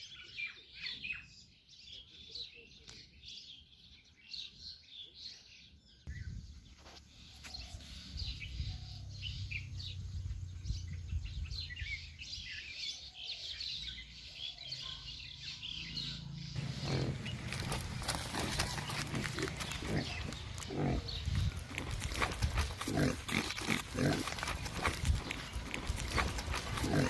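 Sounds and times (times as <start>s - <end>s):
birds chirping: 5.6s - 27.0s.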